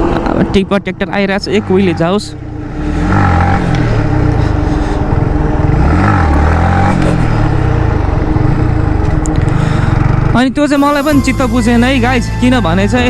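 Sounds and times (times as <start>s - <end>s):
heavy diesel vehicle passing: 1.5s - 10.4s.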